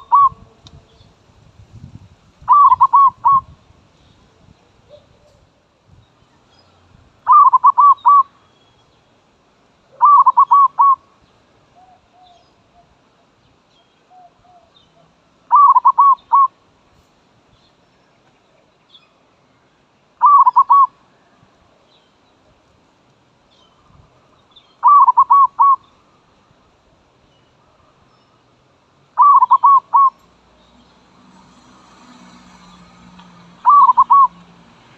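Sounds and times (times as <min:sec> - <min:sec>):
dove cooing: 0:00.0 - 0:00.6, 0:02.5 - 0:03.5, 0:07.3 - 0:08.3, 0:09.9 - 0:11.0, 0:15.5 - 0:16.5, 0:20.2 - 0:20.9, 0:24.8 - 0:25.9, 0:29.2 - 0:30.2, 0:33.6 - 0:34.4.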